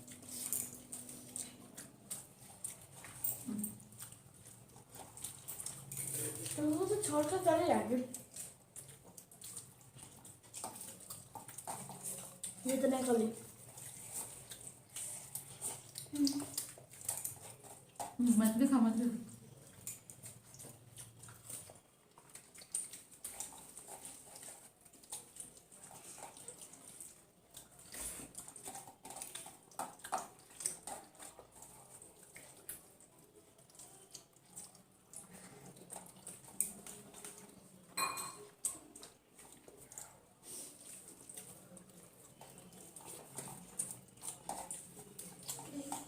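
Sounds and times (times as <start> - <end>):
plates clinking: 38.0 - 38.5.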